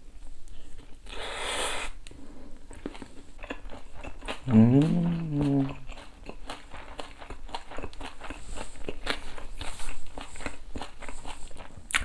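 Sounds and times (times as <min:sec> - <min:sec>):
chewing food with mouth closed: 0:02.6 - 0:12.0
person humming: 0:04.4 - 0:05.9.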